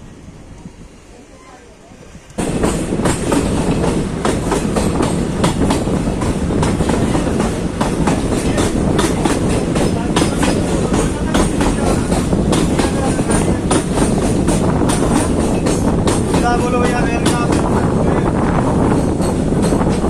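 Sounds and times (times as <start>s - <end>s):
train rumbling: 0.0s - 20.0s
wheels clattering over rail joints: 2.3s - 17.9s.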